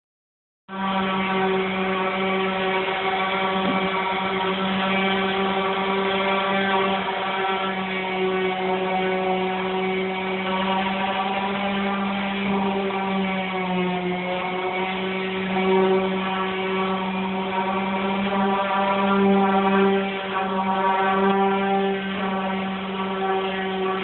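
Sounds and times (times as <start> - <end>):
truck engine running steadily: 1.9 - 8.0.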